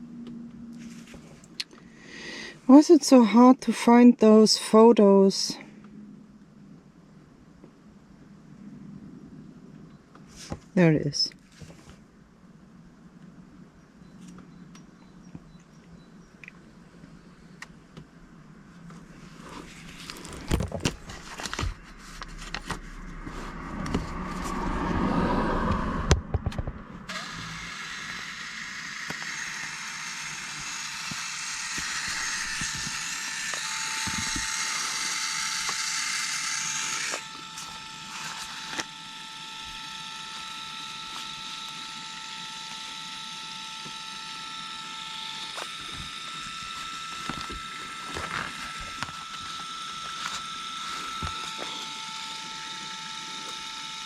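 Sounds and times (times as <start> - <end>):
thin steady whine: 0.0 - 54.0
motor whirring: 19.4 - 26.2, 27.0 - 54.0.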